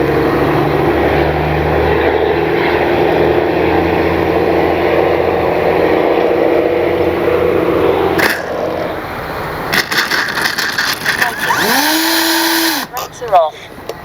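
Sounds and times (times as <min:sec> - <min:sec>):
model plane motor whine: 0:11.3 - 0:13.0.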